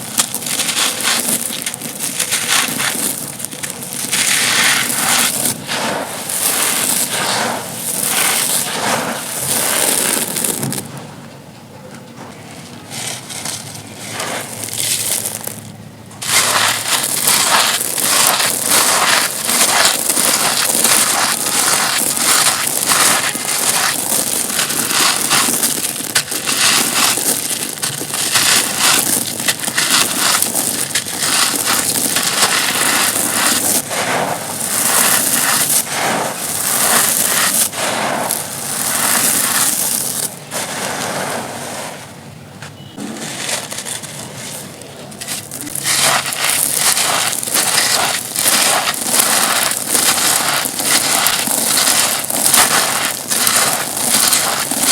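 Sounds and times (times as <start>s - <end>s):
stony chunks crunching: 0.0s - 11.3s, 11.9s - 41.6s, 42.6s - 54.9s.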